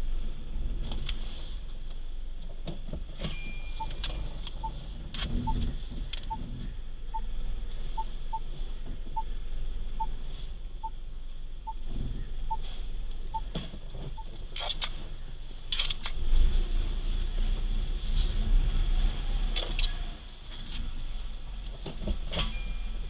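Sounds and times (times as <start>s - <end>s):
car engine and road rumble: 0.0s - 23.0s
faint short electronic beep: 3.3s - 4.3s.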